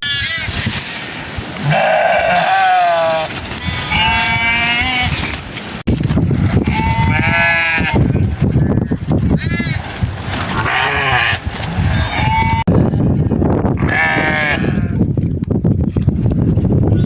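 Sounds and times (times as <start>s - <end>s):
sheep bleating: 1.6s - 5.3s, 6.6s - 8.1s, 10.6s - 12.7s, 13.8s - 15.0s.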